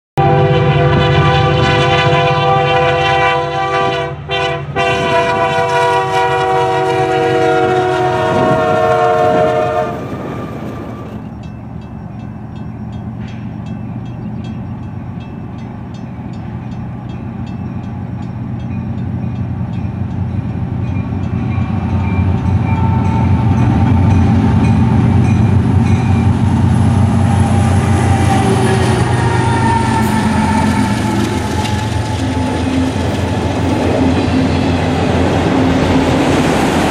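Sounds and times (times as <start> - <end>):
locomotive air horn blast: 0.2 - 11.2, 21.6 - 24.8, 26.8 - 34.8
diesel locomotives rumbling: 0.2 - 36.9
crossing bell ringing: 11.0 - 36.9.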